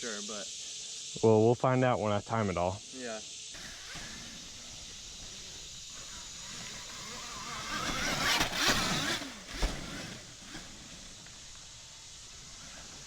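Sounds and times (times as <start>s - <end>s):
dirt bike passing by: 3.6s - 13.0s.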